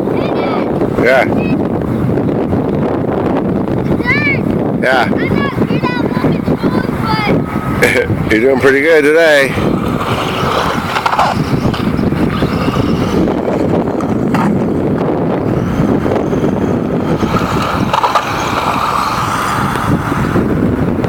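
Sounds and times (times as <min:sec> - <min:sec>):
electric motor whine: 0:07.1 - 0:21.0
toy truck wheels rattling: 0:09.6 - 0:14.4, 0:17.0 - 0:20.3.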